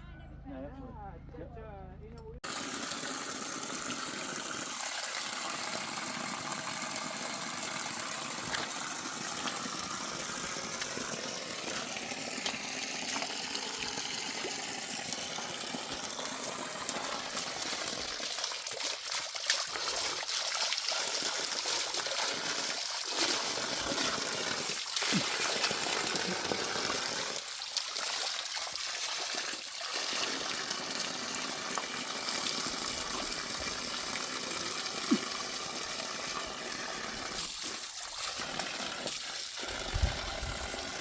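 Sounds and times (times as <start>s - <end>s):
running water: 2.4s - 41.0s.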